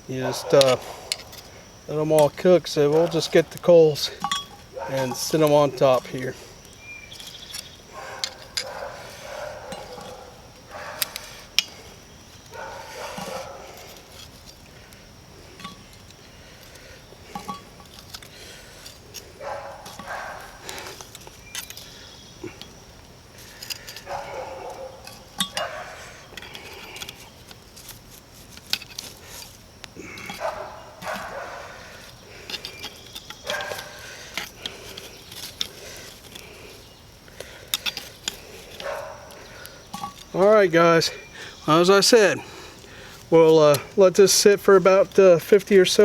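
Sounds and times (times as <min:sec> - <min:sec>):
metal tongs clinking: 0:02.1 - 0:06.2, 0:23.5 - 0:27.6, 0:30.1 - 0:36.5, 0:37.7 - 0:40.4.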